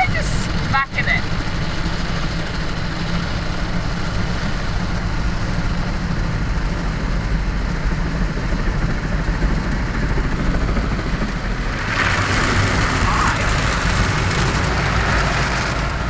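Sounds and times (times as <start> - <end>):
car wash brushes and water: 11.5 - 16.0.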